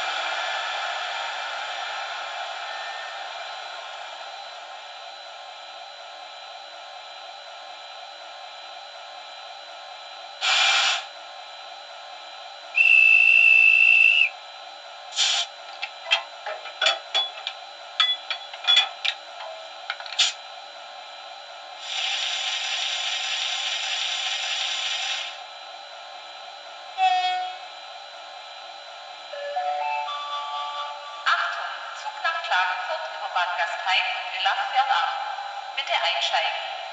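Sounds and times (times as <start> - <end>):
model locomotive running hum: 0.0 - 32.4
hiss of air: 10.4 - 11.1, 15.1 - 15.5
high whistle: 12.8 - 14.4.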